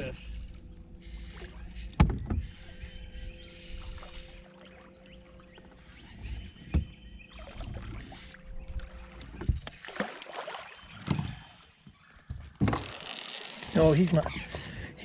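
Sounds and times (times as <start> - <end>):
knocks on a small boat: 1.9 - 2.5, 6.6 - 7.0
water sloshing: 3.4 - 14.8.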